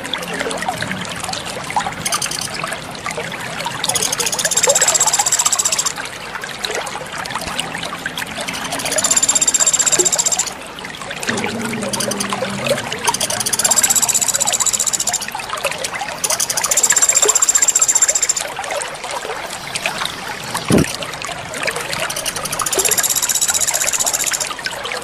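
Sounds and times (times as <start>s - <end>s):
water trickling and splashing: 0.0s - 25.0s
high buzzing trill: 11.3s - 15.4s, 16.2s - 18.5s, 22.1s - 24.5s.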